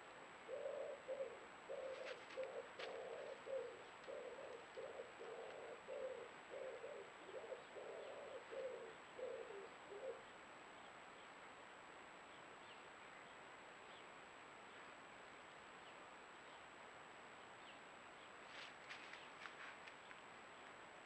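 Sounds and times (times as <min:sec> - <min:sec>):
faint background hiss: 0:00.0 - 0:21.0
bird cooing: 0:00.4 - 0:10.3.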